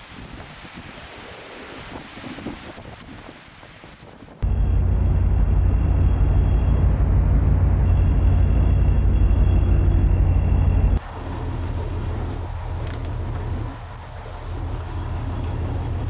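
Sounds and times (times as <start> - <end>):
vehicle engine rumbling: 4.4 - 16.0.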